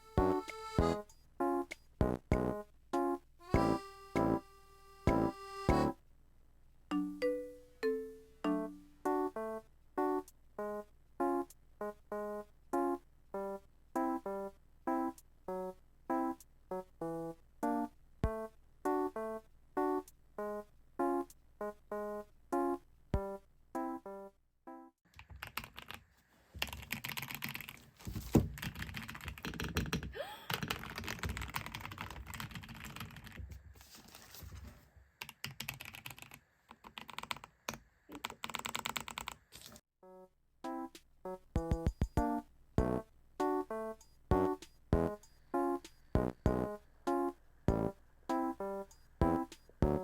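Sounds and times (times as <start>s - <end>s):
plucked background music: 0.0s - 6.0s, 7.0s - 16.9s, 40.1s - 50.0s.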